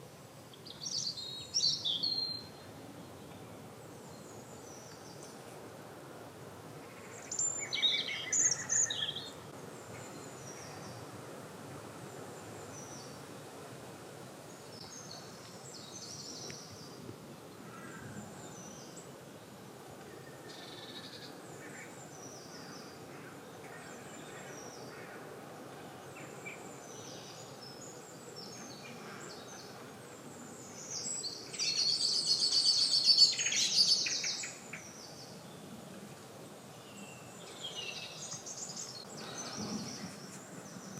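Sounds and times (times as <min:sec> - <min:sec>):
outdoor background hiss: 0:00.0 - 0:40.9
birds singing: 0:00.5 - 0:05.4, 0:06.8 - 0:11.1, 0:14.5 - 0:35.8, 0:36.7 - 0:40.9.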